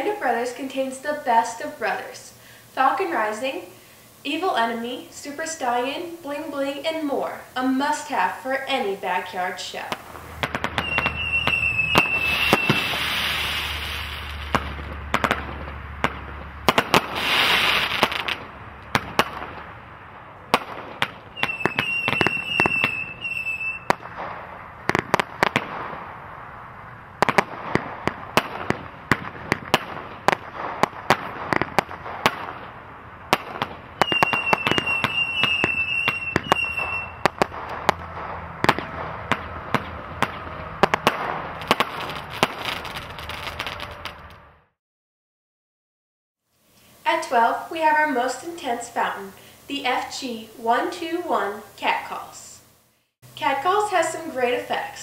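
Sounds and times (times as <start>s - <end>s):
firework crackling hiss: 0.0s - 19.9s, 20.5s - 44.4s
firework shots and bangs: 9.9s - 19.8s, 20.5s - 26.4s, 27.1s - 44.4s
wavering high whistle: 10.8s - 13.0s, 21.3s - 23.9s, 34.0s - 37.3s.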